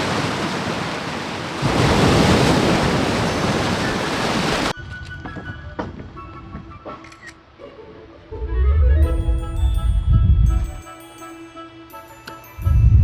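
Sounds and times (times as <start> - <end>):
sea waves washing ashore: 0.0 - 4.8
soft background music: 4.8 - 13.0
wind buffeting microphone: 8.6 - 10.8, 12.6 - 13.0.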